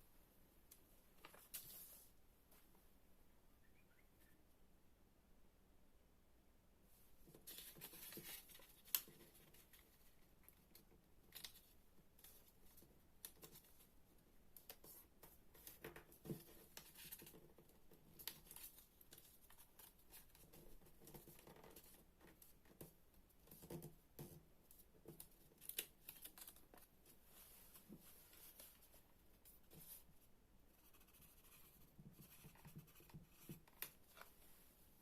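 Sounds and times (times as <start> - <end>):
paper crinkling and rustling: 25.1 - 29.0.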